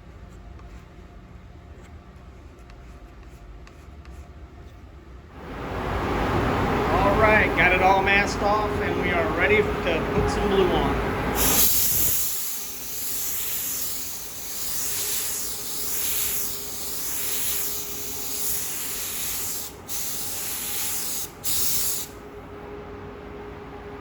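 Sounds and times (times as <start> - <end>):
paint spray gun hissing: 11.4 - 22.2.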